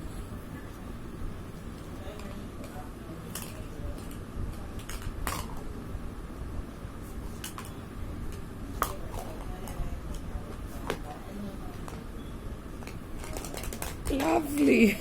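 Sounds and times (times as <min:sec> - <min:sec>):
low room hum: 0:00.0 - 0:15.0
plastic toys clicking together: 0:12.8 - 0:14.7.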